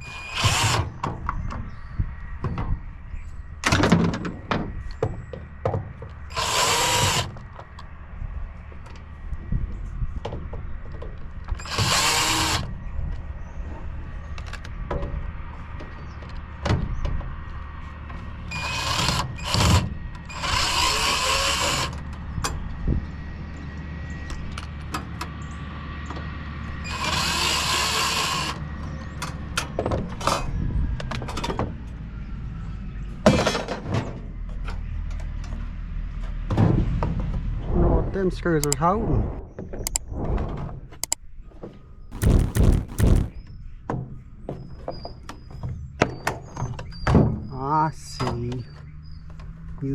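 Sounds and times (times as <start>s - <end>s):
power drill running: 0.0s - 0.8s, 6.3s - 7.3s, 11.6s - 12.6s, 18.6s - 21.9s, 26.9s - 28.6s.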